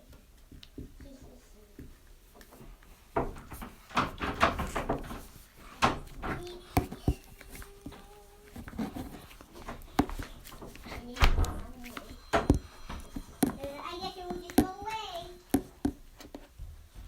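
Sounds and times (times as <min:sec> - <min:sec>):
door knocks and bumps: 0:03.2 - 0:06.5, 0:11.2 - 0:13.1.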